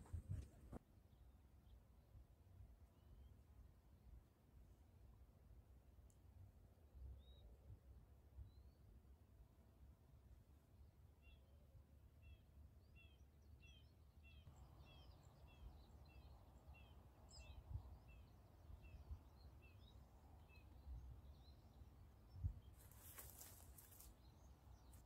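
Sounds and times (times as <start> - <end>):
bird chirping: 12.3 - 25.0.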